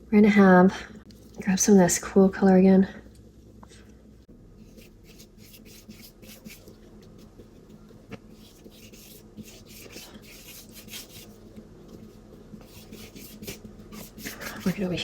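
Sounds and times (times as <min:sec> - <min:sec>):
paintbrush scrubbing on paper: 0:04.6 - 0:06.7, 0:08.3 - 0:11.4, 0:12.6 - 0:15.0.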